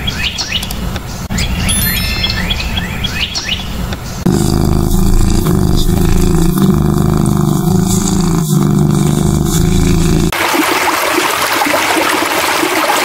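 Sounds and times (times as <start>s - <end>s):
bird calls with falling notes: 0.0s - 4.2s
steady low rumble: 3.8s - 10.3s.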